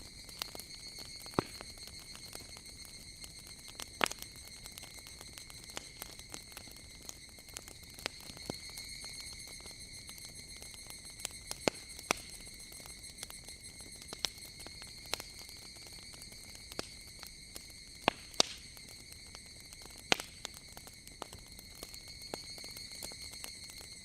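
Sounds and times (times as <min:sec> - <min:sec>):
cicadas chorus: 0:00.0 - 0:24.0
wood fire crackling and popping: 0:00.0 - 0:24.0.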